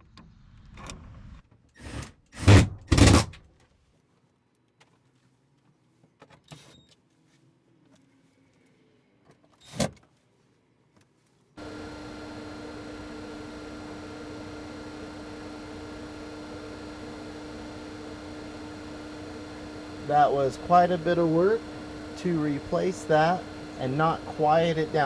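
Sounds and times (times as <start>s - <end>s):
loud bursts of work noise: 1.8s - 3.4s, 11.6s - 25.0s
roof vent fan running: 11.6s - 25.0s.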